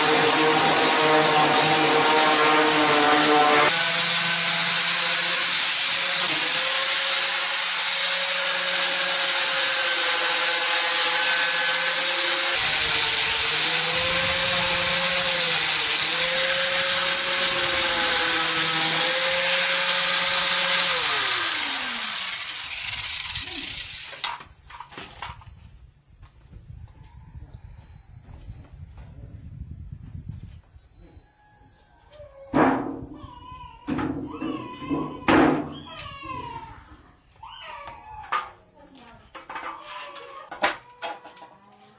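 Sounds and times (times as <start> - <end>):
electric power tool whining: 0.0 - 24.4.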